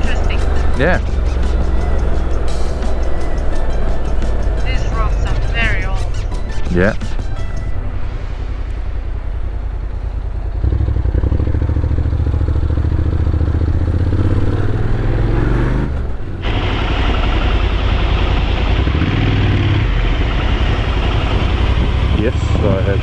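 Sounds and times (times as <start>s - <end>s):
wind noise rushing: 0.0s - 11.6s
motorcycle engine running: 0.0s - 23.0s.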